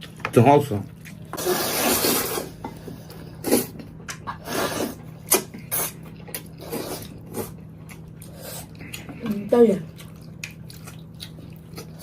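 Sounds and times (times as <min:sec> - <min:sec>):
person slurping noodles: 0:01.4 - 0:02.6.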